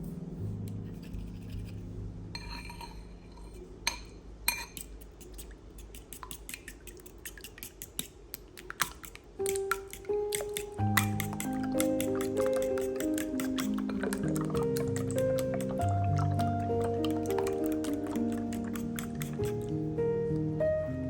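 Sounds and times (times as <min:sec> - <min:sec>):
soft background music: 0:00.0 - 0:04.9, 0:09.4 - 0:21.0
dishes and cutlery clinking: 0:02.4 - 0:05.5, 0:08.8 - 0:19.7.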